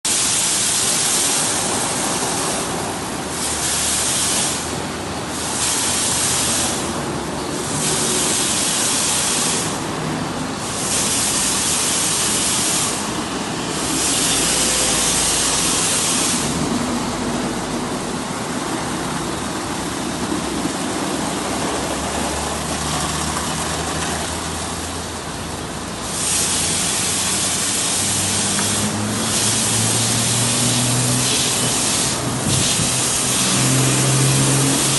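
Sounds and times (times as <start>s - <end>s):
blow dryer running: 26.1s - 34.9s.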